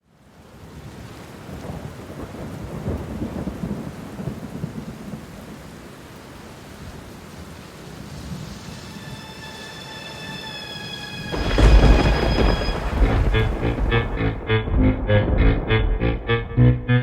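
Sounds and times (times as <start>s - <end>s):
steady rain: 0.0s - 16.0s
low rumble of thunder: 1.5s - 5.6s, 11.3s - 16.7s.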